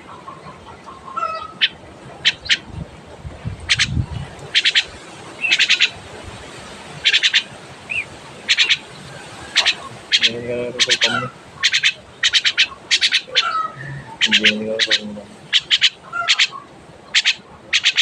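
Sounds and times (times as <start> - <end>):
bird squawking: 1.1 - 2.6, 3.6 - 6.0, 7.0 - 18.0.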